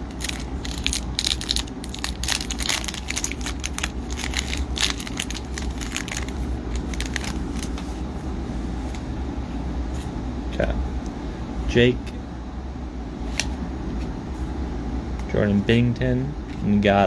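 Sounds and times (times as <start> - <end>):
foil pack crinkling: 0.0 - 7.9
cards being handled: 0.0 - 8.0
steady low hum: 0.0 - 17.0.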